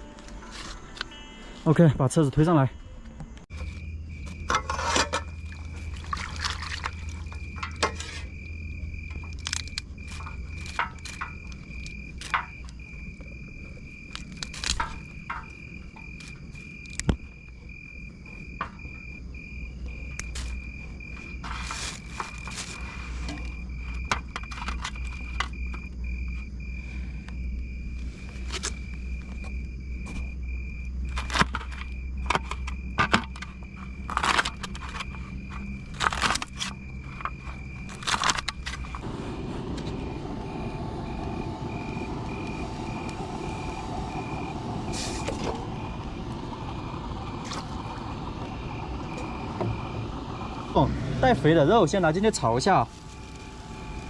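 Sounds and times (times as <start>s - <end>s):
vehicle engine running: 30.8s - 54.0s.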